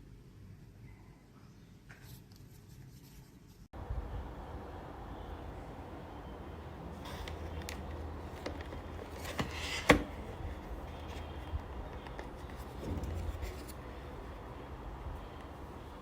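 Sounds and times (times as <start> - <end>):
steady low hum: 3.8 - 16.0
handling clicks and scrapes: 7.0 - 14.2.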